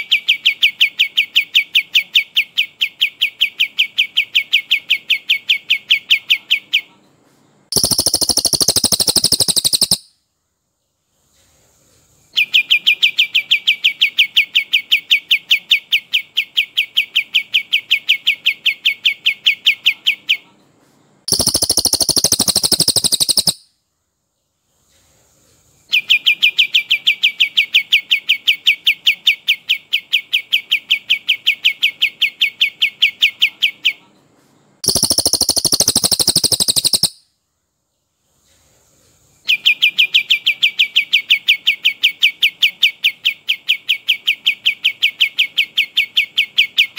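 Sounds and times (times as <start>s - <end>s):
harsh rattling bird call: 7.7s - 10.1s, 21.3s - 23.6s, 34.8s - 37.2s
bird whistling rolling notes: 34.8s - 37.2s.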